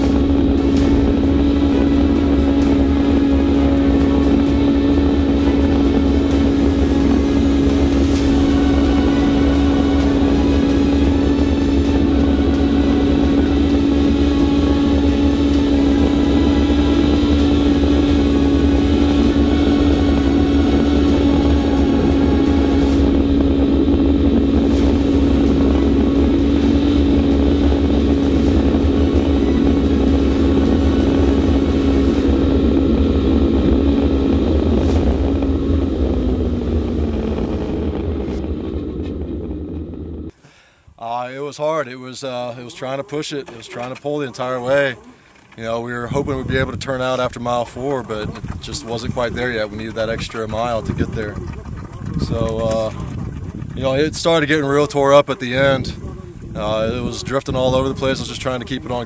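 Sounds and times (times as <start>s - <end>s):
engine running at high pitch: 0.0s - 40.4s, 55.6s - 59.0s
loud rushing noise: 0.0s - 40.4s.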